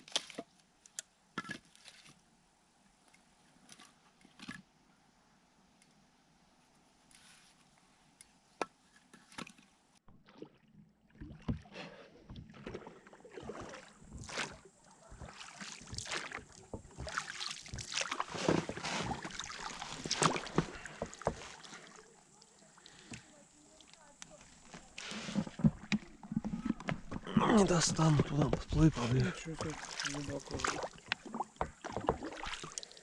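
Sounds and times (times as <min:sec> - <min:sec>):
oars splashing and knocking: 0:09.1 - 0:33.0
water churning: 0:10.1 - 0:33.0.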